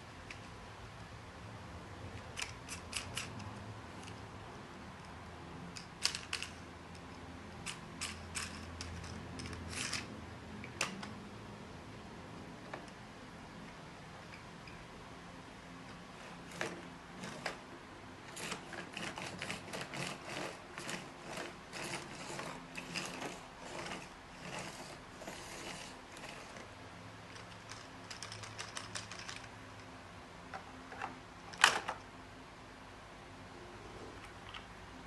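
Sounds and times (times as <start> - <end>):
faint steady hum: 0.0 - 35.0
small hard parts clicking: 2.2 - 4.2, 5.0 - 11.2, 27.3 - 29.9.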